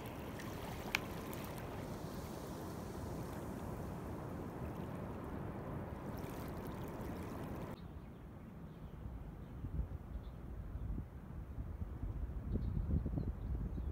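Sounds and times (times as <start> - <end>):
water sloshing around wading legs: 0.0 - 7.8.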